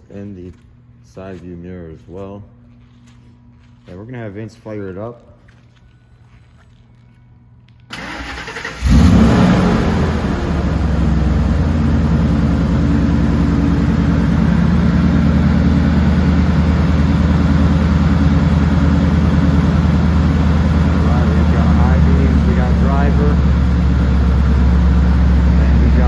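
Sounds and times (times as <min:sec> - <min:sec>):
starter motor cranking: 0:08.0 - 0:09.3
car engine revving and idling: 0:08.0 - 0:26.0.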